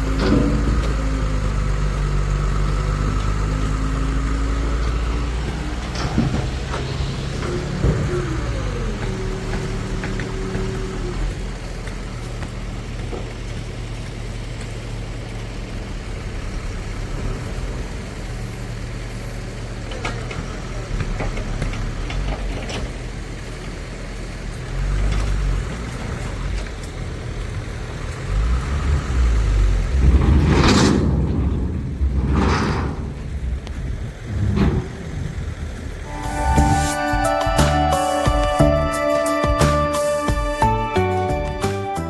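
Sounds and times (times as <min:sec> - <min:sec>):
diesel truck engine running: 0:00.0 - 0:42.0
loud rushing burst: 0:29.8 - 0:37.4.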